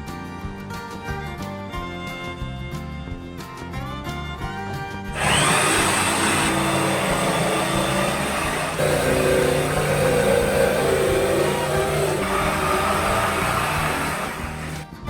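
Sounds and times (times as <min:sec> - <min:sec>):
electric power tool whining: 0:05.1 - 0:15.0.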